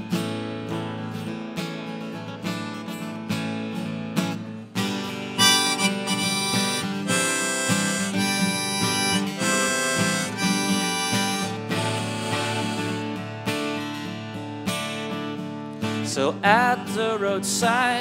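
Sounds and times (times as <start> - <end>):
strummed acoustic guitar: 0.0 - 18.0
harmonica solo: 5.4 - 13.9.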